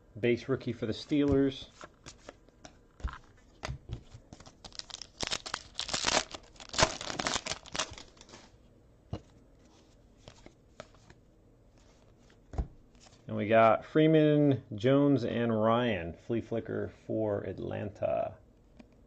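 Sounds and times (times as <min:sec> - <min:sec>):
foil wrapper tearing and crinkling: 0:04.4 - 0:08.4.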